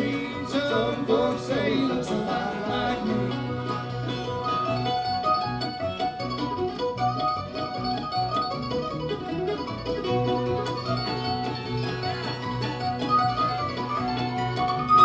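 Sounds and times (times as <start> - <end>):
acoustic guitar picking: 0.0 - 15.0
bass line: 0.0 - 15.0
mandolin picking: 0.0 - 15.0.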